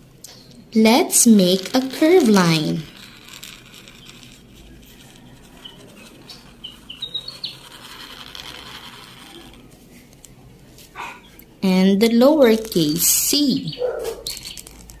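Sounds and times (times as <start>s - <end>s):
marker drawing on paper: 1.1s - 10.2s
marker tip squeaks: 1.4s - 10.2s, 12.4s - 15.0s.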